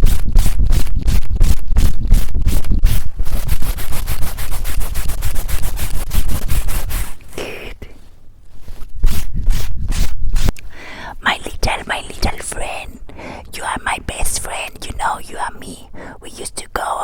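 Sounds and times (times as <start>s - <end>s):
scratching on a microphone: 0.0s - 10.6s.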